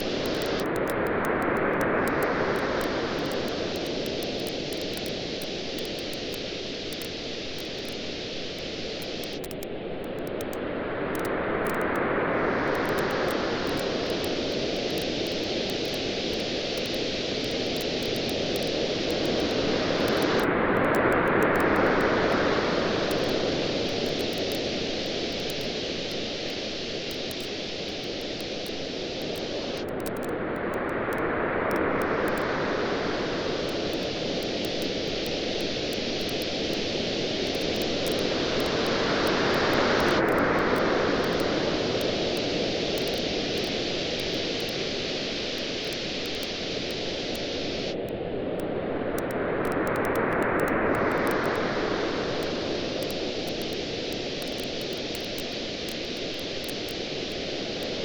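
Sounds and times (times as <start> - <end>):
campfire crackling: 0.0 - 1.0, 1.6 - 10.6, 12.7 - 20.5, 21.3 - 30.7, 31.7 - 48.0
waves washing on beach: 10.6 - 58.0.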